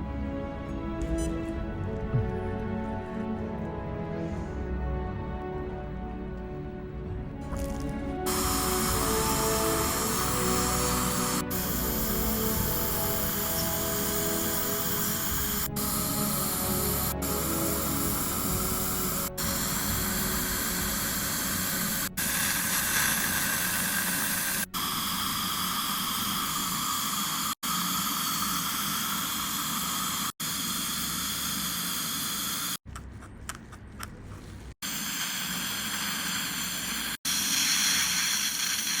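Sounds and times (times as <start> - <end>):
dental equipment hissing: 8.3 - 32.8, 34.8 - 39.0.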